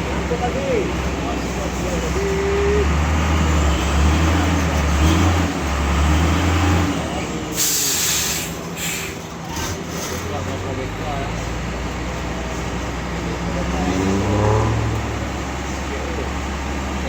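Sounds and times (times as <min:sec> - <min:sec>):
heavy truck engine droning: 0:00.0 - 0:17.0
air brakes hissing: 0:07.5 - 0:09.4.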